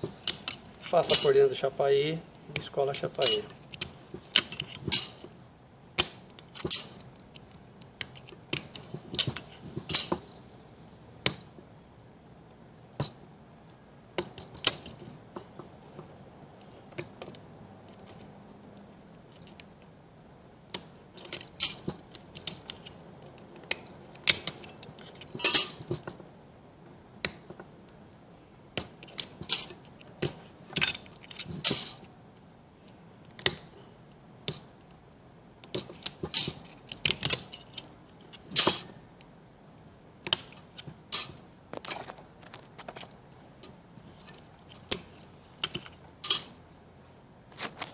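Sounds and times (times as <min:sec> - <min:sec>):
metallic clicks and clinks: 0:00.0 - 0:01.7, 0:02.3 - 0:05.3.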